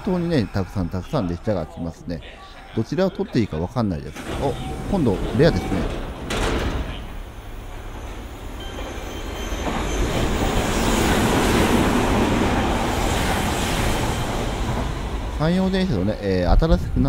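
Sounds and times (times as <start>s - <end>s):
electric train passing: 3.9s - 17.0s.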